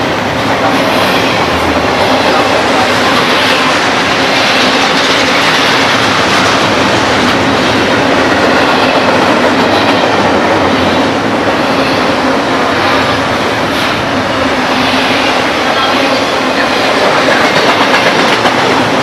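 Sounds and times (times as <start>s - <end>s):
train wheels rushing on rail: 0.0s - 19.0s.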